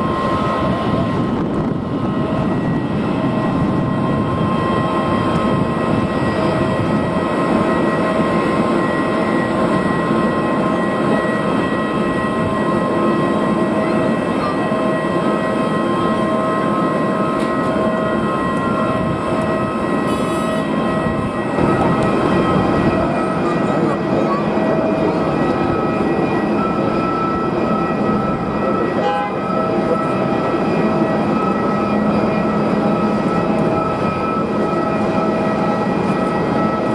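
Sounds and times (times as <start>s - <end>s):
jet engines whining: 0.0s - 36.9s.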